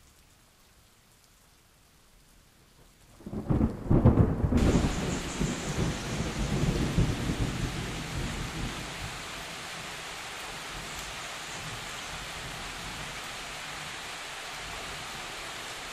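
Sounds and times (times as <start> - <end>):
rain falling on trees: 0.0 - 15.9
thunder rumbling: 3.2 - 9.2.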